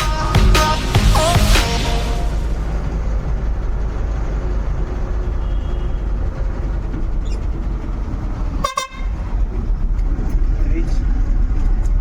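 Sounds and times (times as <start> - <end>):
truck rumbling: 0.0 - 12.0
vehicle horn toot: 5.4 - 6.0, 8.6 - 9.1.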